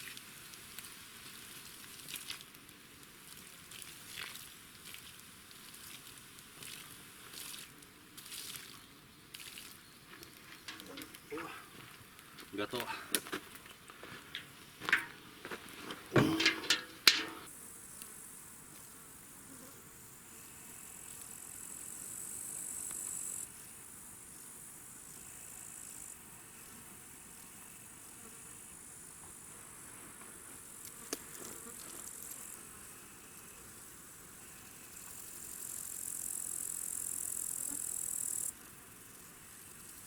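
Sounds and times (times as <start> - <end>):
sharp knocks and clatters: 14.3 - 15.2, 16.0 - 17.5
insects buzzing: 16.2 - 40.0.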